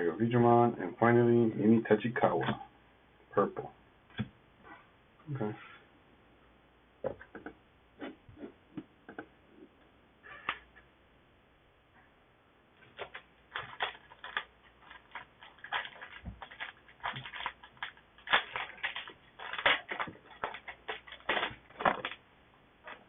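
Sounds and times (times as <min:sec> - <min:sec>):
foil wrapper crinkling and tearing: 0:12.9 - 0:22.2.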